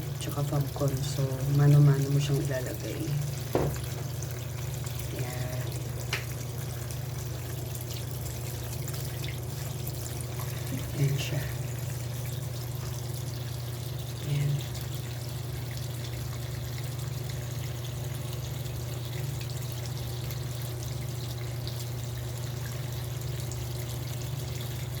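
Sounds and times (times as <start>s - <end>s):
washing machine low hum: 0.0s - 25.0s
water running into washing machine: 0.0s - 25.0s.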